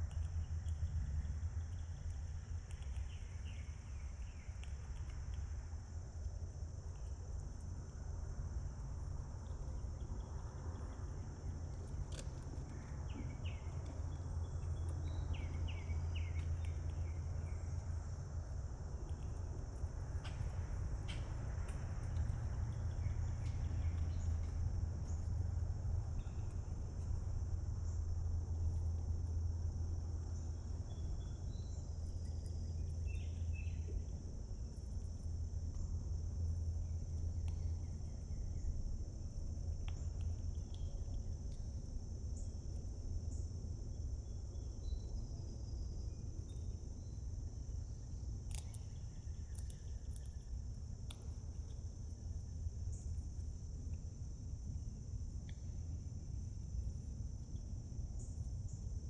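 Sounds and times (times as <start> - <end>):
insects chirping: 0.0 - 59.0
faint bird chirps: 12.7 - 17.8, 30.4 - 34.2.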